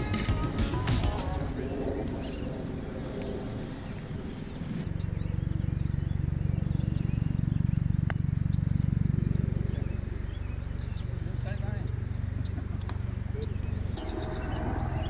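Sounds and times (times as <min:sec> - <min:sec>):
low pulsing motor drone: 0:01.4 - 0:15.0
faint bird chirps: 0:04.0 - 0:15.0.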